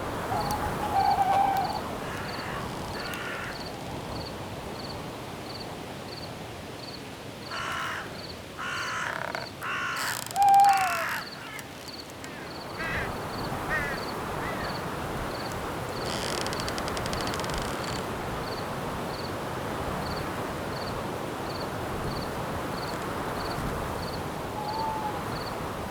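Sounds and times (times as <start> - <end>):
wind hissing through trees: 0.0 - 25.9
crow cawing: 0.2 - 3.7, 7.5 - 14.8
cricket chirping: 0.2 - 7.6.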